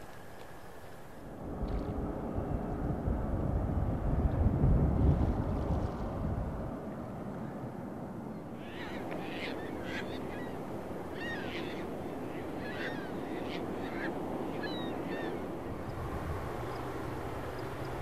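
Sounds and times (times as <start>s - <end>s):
wind: 0.0s - 18.0s
birds calling: 8.3s - 18.0s.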